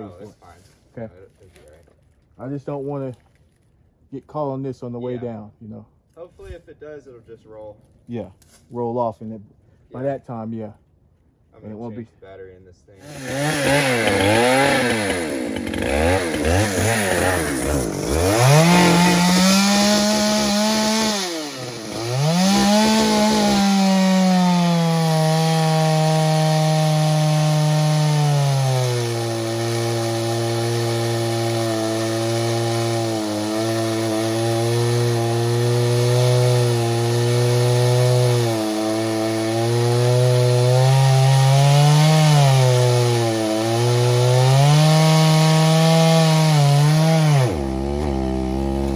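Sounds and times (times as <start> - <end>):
chainsaw revving and cutting: 13.0 - 48.9.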